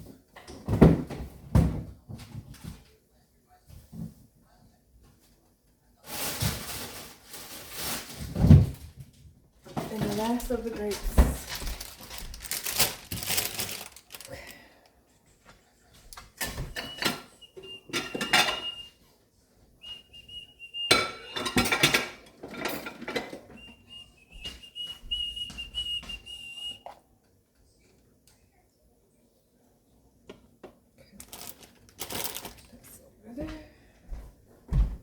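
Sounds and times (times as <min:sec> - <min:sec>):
dishes and utensils clinking: 0:16.4 - 0:18.9, 0:19.8 - 0:26.2
thin high whistle: 0:19.8 - 0:21.5, 0:23.5 - 0:27.0.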